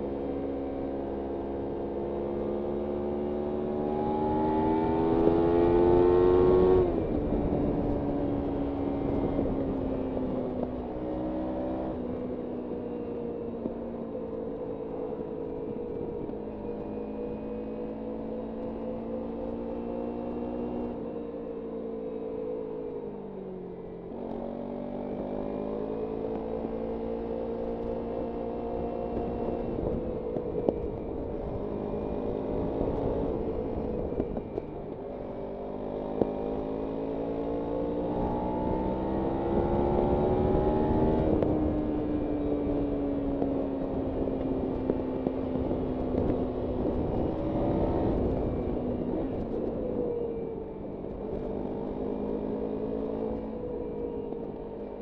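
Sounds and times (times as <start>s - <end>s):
motorcycle engine revving: 0.0s - 22.8s, 23.9s - 55.0s
wind rush on microphone: 4.2s - 11.0s, 28.6s - 35.3s, 38.0s - 52.0s.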